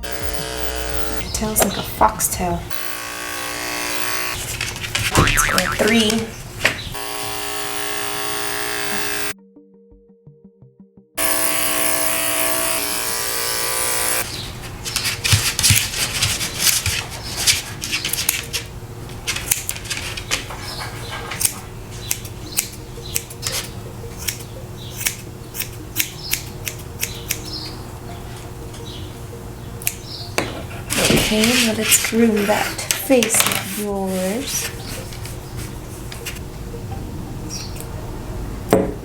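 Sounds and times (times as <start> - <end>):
loud electric buzz: 0.0 - 1.2, 2.7 - 4.4, 7.0 - 9.4, 11.2 - 14.2
scissors snipping fur: 19.3 - 19.9, 21.3 - 27.6.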